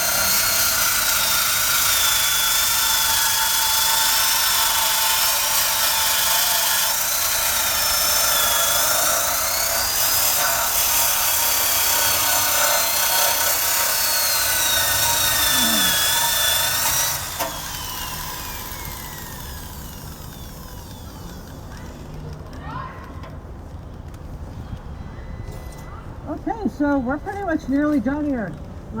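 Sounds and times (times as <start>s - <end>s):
wire brush grinding metal: 0.0s - 20.8s
drill winding down: 0.0s - 22.2s.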